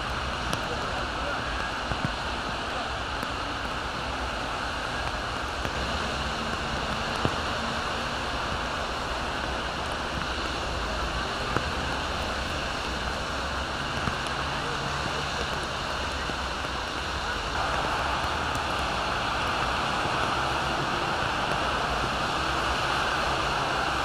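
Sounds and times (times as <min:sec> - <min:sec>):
steady rain: 0:00.0 - 0:24.0
traffic on wet streets: 0:00.0 - 0:24.0.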